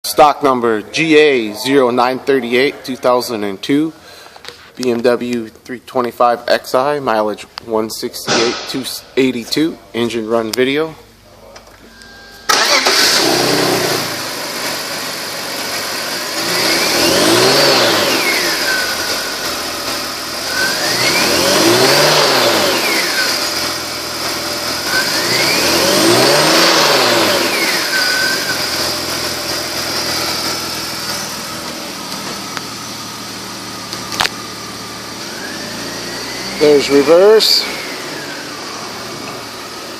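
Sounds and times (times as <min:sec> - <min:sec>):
car engine starting and idling: 0:00.1 - 0:39.9
car engine revving: 0:12.0 - 0:39.9.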